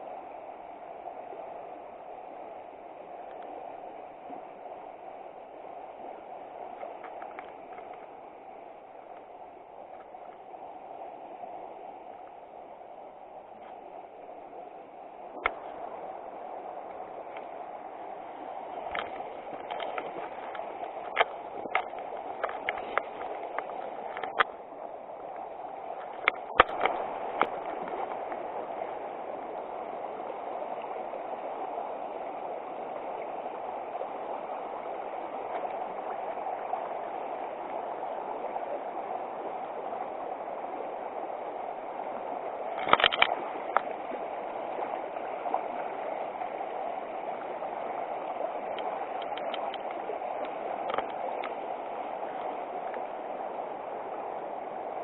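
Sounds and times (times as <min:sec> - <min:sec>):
river water rushing: 0:00.0 - 0:55.0
sharp clicks and knocks: 0:26.2 - 0:27.6, 0:42.8 - 0:43.9.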